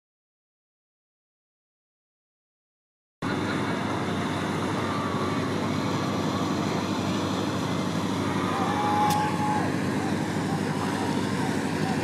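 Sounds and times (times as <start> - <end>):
boat engine running: 3.2 - 12.0.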